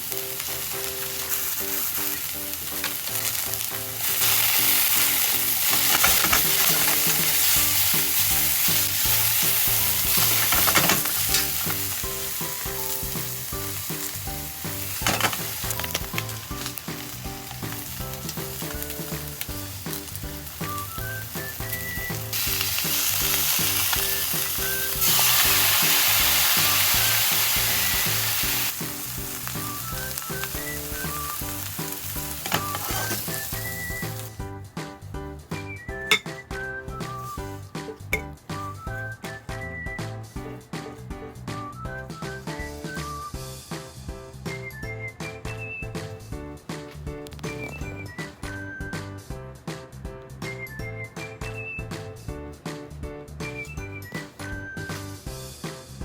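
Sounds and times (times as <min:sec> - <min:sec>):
peppers sizzling in a pan: 0:00.0 - 0:34.4
utensil knocking against pan: 0:36.1 - 0:36.4.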